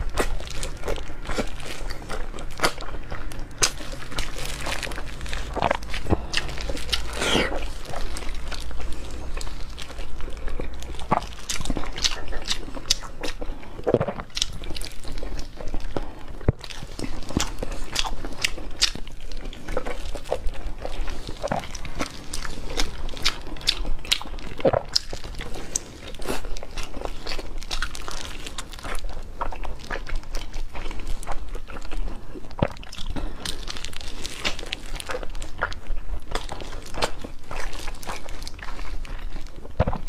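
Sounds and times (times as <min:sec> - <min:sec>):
chewing and biting: 0:00.0 - 0:40.0.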